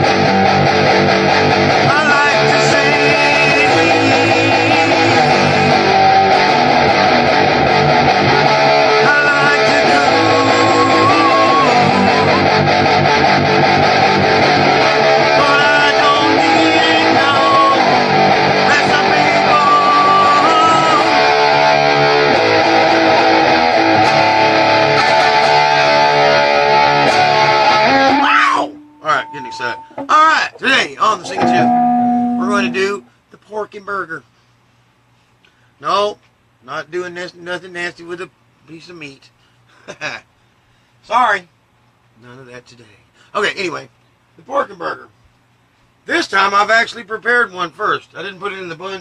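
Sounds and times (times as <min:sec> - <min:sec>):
guitar melody over strummed chords: 0:00.0 - 0:30.1, 0:31.3 - 0:33.2.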